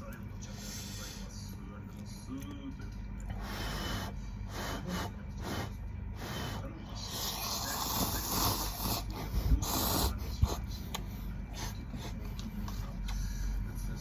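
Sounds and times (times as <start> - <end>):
close chewing noises: 6.9 - 14.0.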